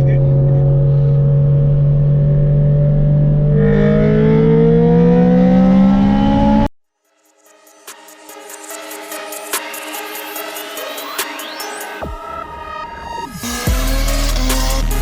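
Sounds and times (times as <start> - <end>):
car engine accelerating: 0.0 - 6.7
music: 6.9 - 15.0.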